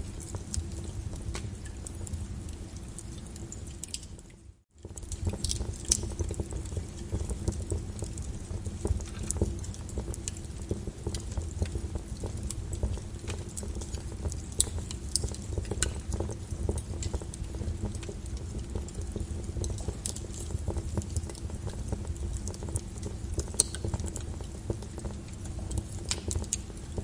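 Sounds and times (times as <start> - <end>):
fireplace fire crackling: 0.0 - 27.0.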